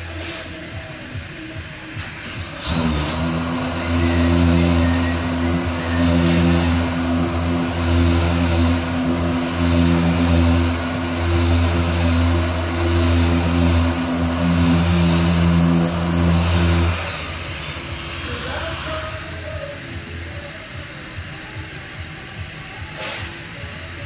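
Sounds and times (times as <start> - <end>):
power sander whining: 2.5 - 19.5.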